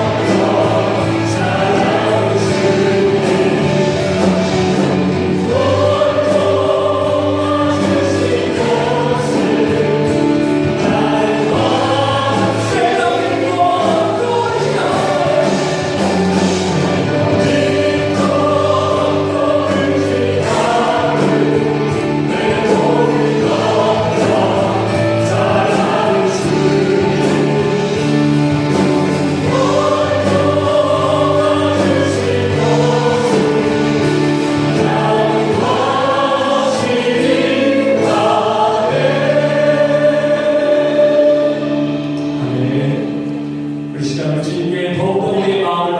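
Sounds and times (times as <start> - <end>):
group singing worship song: 0.0 - 45.9
instrumental accompaniment: 0.0 - 45.9.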